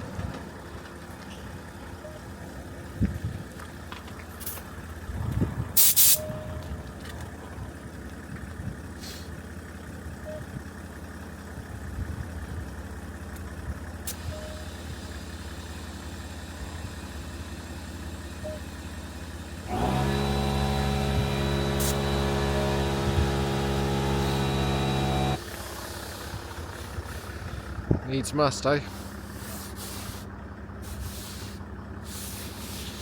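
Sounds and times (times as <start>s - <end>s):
compressed air hissing: 5.8s - 6.2s, 19.7s - 25.4s, 28.9s - 33.0s
machine humming: 19.7s - 25.4s.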